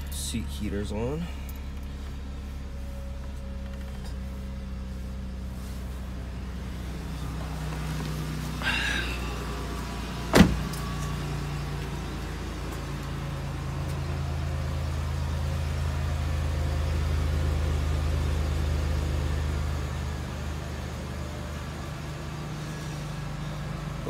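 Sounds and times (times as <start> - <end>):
car engine idling: 0.0 - 24.0
car door slamming: 10.2 - 10.9.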